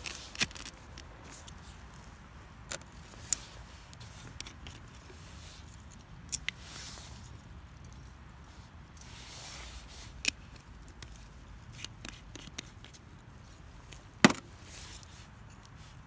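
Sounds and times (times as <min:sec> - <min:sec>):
sharp knock: 0:14.2 - 0:14.5.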